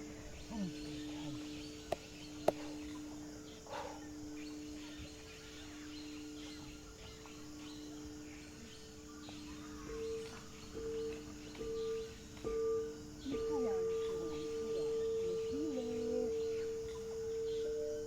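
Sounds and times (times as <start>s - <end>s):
faint chirps: 0.0s - 18.0s
low two-note drone: 4.3s - 18.0s.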